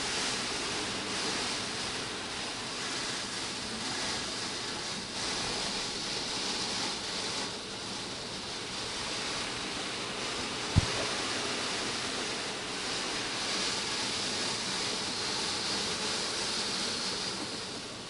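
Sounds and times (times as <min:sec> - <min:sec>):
water spray hissing on car: 0:00.0 - 0:18.0
brief thump: 0:10.7 - 0:11.2.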